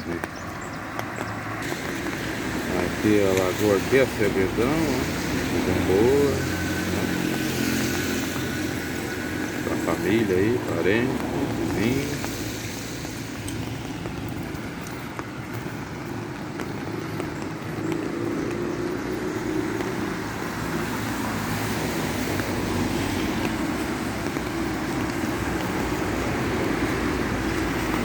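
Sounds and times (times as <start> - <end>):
tyres on wet road: 0.0 - 28.0
car engine: 0.9 - 14.5.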